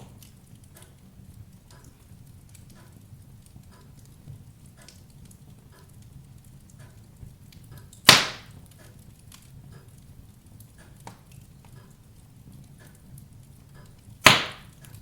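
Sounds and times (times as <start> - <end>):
fire popping: 0.0 - 15.0
wood fire crackling: 0.0 - 15.0.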